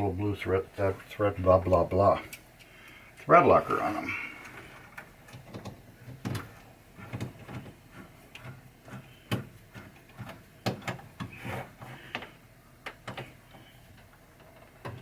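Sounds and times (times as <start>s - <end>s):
rubbing and scraping: 6.1s - 12.3s.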